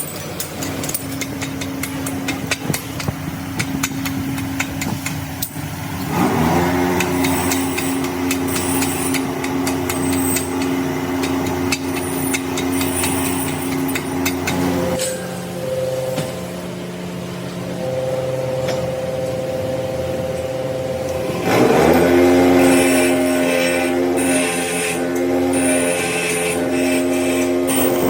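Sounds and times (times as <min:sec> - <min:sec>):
electric motor hum: 0:02.8 - 0:28.0
machine spinning up with whine: 0:05.6 - 0:28.0
sharp metallic taps: 0:07.0 - 0:15.2.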